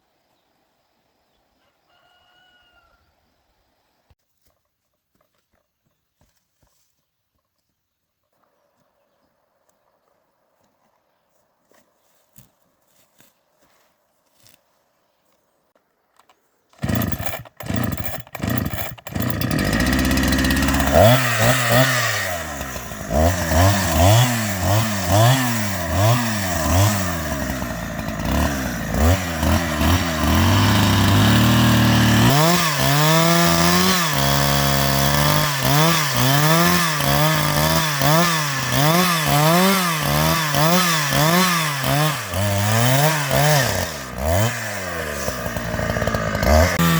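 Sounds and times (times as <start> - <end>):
chainsaw sputtering and revving: 16.8 - 46.9.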